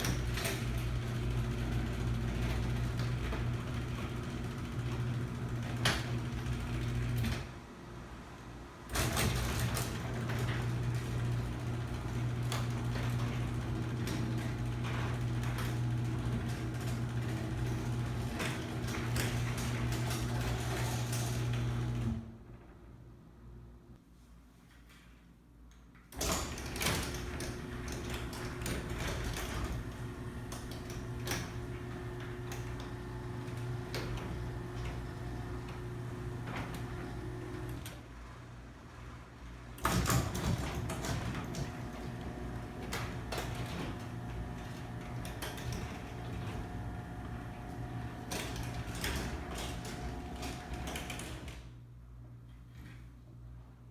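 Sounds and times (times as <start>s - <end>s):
garage door opener motor hum: 0.0s - 23.2s, 26.1s - 52.3s.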